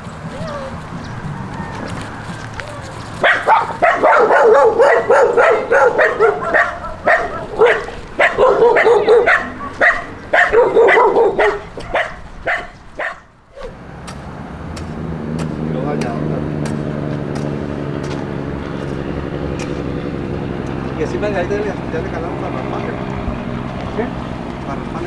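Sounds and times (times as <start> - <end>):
dog yipping and whining: 0.3 - 0.8, 1.6 - 13.2.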